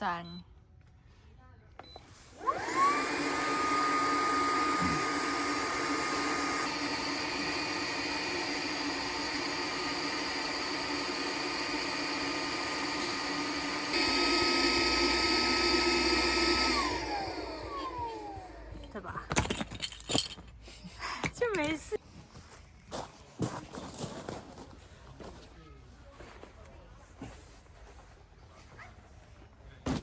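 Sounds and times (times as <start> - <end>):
small electric motor whining: 2.3 - 19.0.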